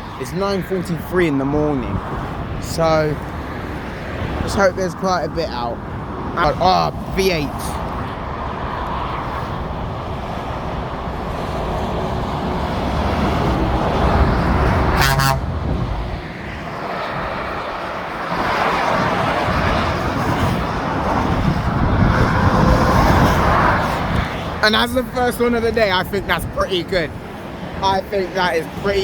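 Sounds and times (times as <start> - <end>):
lorry passing: 0.0 - 29.0
motorway traffic rushing past: 0.0 - 29.0
lorry horn blast: 14.9 - 15.6.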